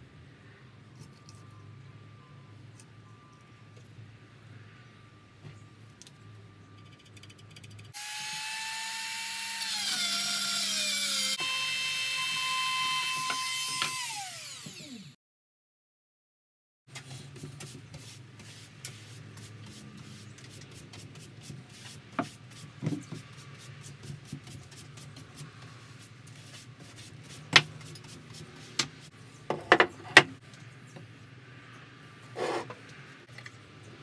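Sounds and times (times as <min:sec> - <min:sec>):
brush sweeping sawdust: 0:17.0 - 0:29.2.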